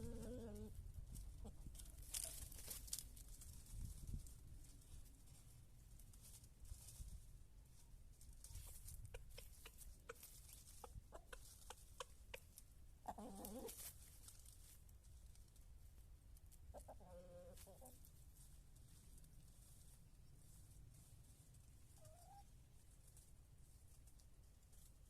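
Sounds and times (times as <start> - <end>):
chickens clucking faintly: 7.8 - 14.7, 16.4 - 19.2, 19.8 - 25.0
chicken drawn-out calls: 8.6 - 13.9.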